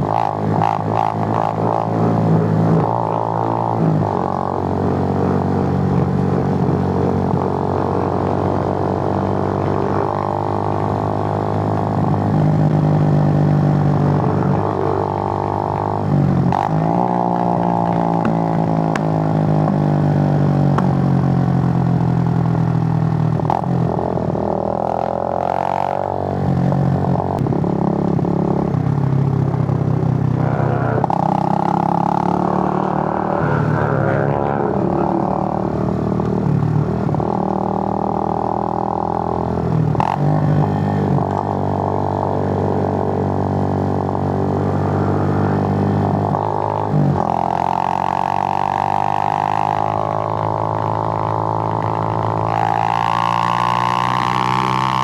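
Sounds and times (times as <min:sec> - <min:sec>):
motorcycle engine changing gear: 0:15.6 - 0:21.3.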